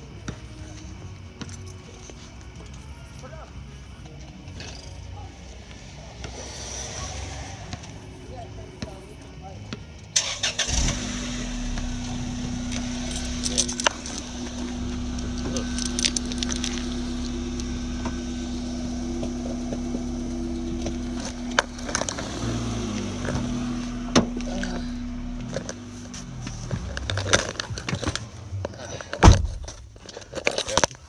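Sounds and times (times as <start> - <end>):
car engine running: 10.3 - 29.8.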